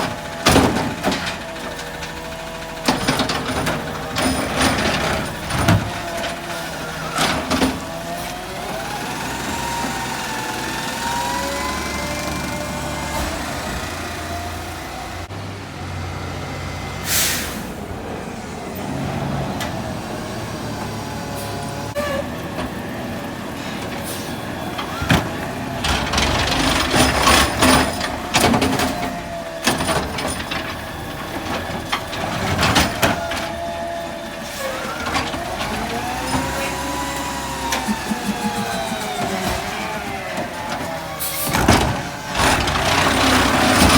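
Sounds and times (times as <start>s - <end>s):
clanks and bangs: 0.0s - 8.2s, 24.8s - 34.0s
truck engine running: 0.0s - 43.9s
hydraulic whine: 32.7s - 43.9s.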